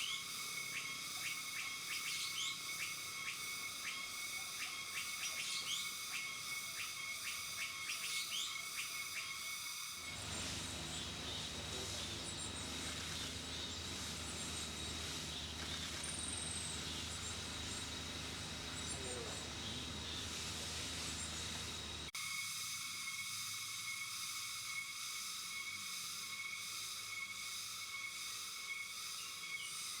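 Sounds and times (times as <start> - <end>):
forest ambience: 0.0 - 30.0
short falling bird calls: 10.0 - 22.1.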